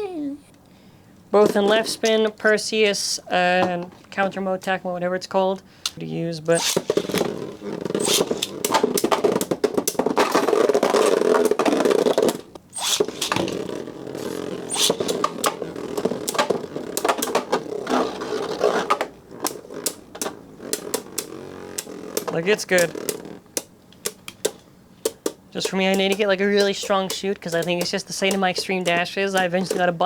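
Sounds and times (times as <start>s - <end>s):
spinning tops clacking: 6.5s - 7.4s, 8.0s - 13.6s, 14.2s - 17.7s, 19.5s - 30.0s
spinning tops scraping whir: 6.5s - 30.0s.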